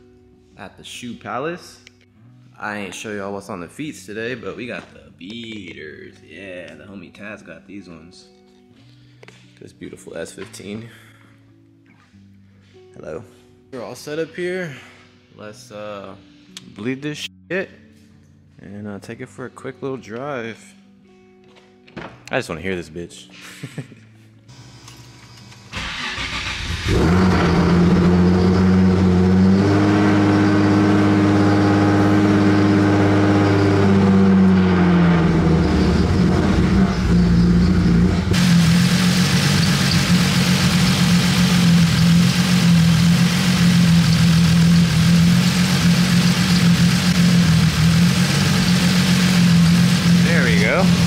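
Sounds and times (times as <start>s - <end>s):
car engine starting and revving: 24.5s - 51.0s.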